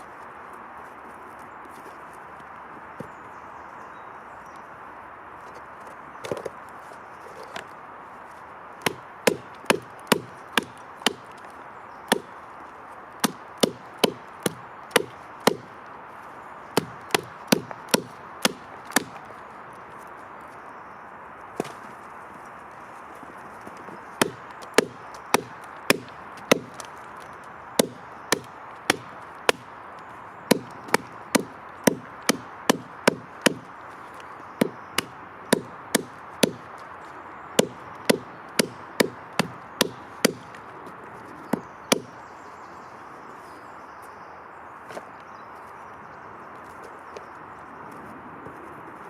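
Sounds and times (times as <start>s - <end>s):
hand tool knocking wood: 8.8s - 11.4s, 12.1s - 12.3s, 13.2s - 15.7s, 16.8s - 19.2s, 24.2s - 26.9s, 27.8s - 29.7s, 30.5s - 33.7s, 34.6s - 36.8s, 37.6s - 40.6s.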